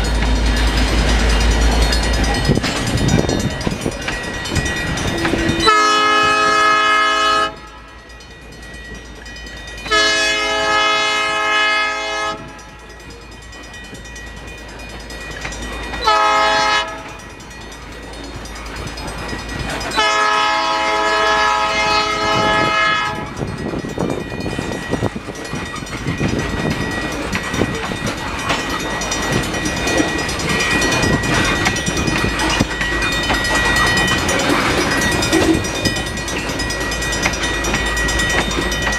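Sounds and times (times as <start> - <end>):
crossing bell ringing: 0.0 - 38.9
train wheels clacking on rails: 0.0 - 38.9
locomotive air horn blasts: 5.4 - 7.9, 9.9 - 12.6, 16.0 - 17.1, 20.0 - 23.4.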